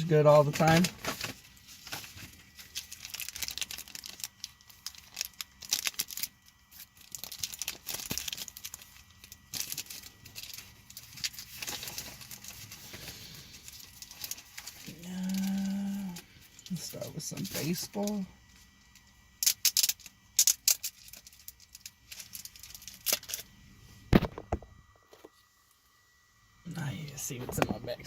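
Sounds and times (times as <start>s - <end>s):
packaging tearing and crinkling: 0.5s - 18.2s, 19.4s - 23.4s.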